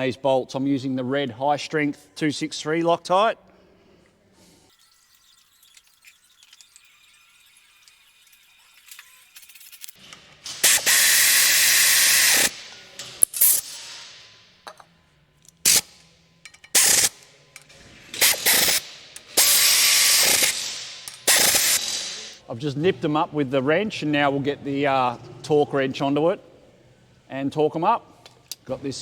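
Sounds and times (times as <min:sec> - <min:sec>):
impact wrench rattling: 0:07.6 - 0:22.4.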